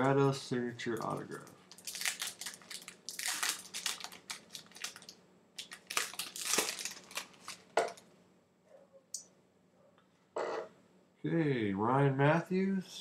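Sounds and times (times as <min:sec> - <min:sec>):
card wrappers crinkling: 0:00.8 - 0:08.0.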